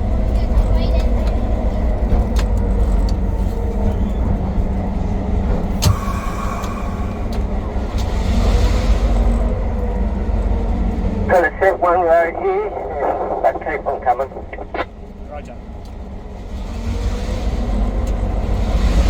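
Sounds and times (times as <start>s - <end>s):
locomotive engine rumbling: 0.0s - 19.0s
sharp knock: 5.8s - 6.8s.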